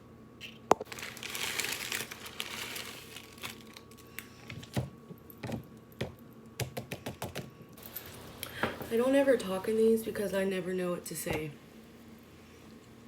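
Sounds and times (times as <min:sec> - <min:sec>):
crinkling and rustling: 0:00.8 - 0:05.6.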